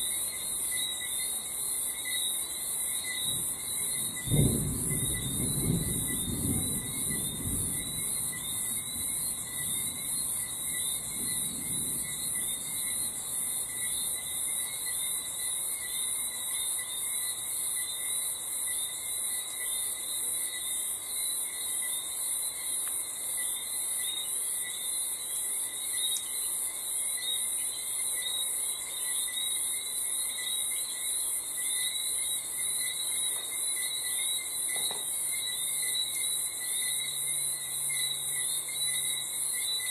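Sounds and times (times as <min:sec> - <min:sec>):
crickets chirping: 0:00.0 - 0:39.9
distant thunder rumble: 0:03.4 - 0:14.0.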